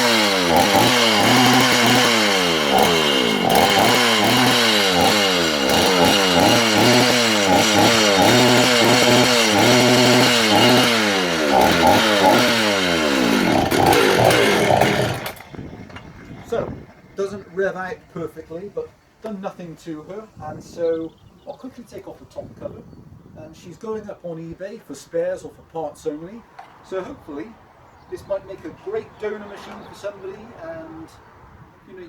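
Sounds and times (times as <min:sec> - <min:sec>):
chainsaw revving: 0:00.0 - 0:18.8.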